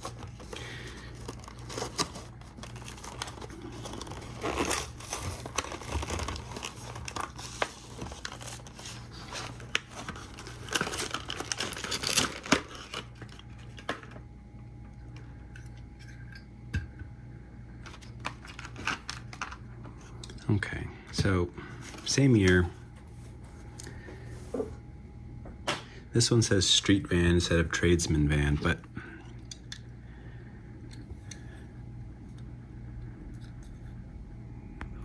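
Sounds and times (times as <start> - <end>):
plastic and cardboard crinkling: 0.0 - 14.2, 17.8 - 20.2, 21.2 - 24.7.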